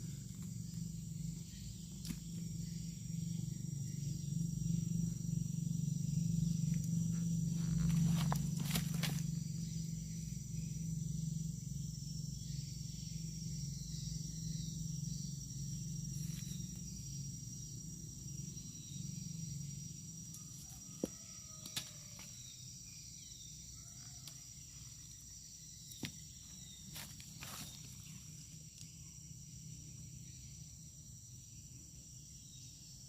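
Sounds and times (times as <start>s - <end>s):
low hum: 0.0s - 21.2s
insects buzzing: 0.0s - 33.0s.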